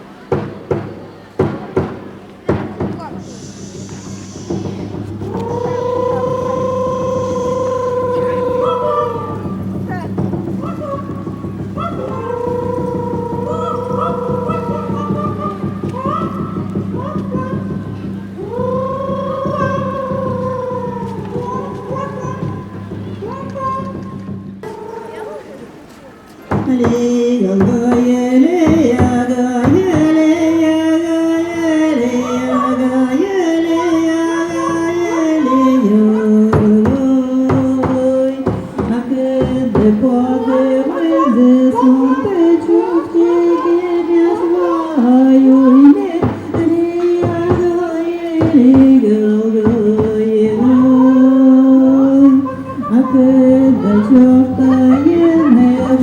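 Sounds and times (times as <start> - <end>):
instrumental accompaniment: 0.3 - 25.8
folk singing voice: 2.5 - 56.0
sharp knocks: 26.5 - 30.2, 36.5 - 40.2.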